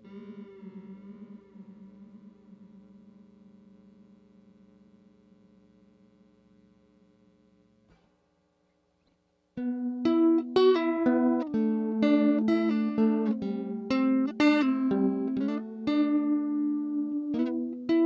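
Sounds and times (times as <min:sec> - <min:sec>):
electric guitar with flanger: 0:00.0 - 0:05.8, 0:09.6 - 0:18.0.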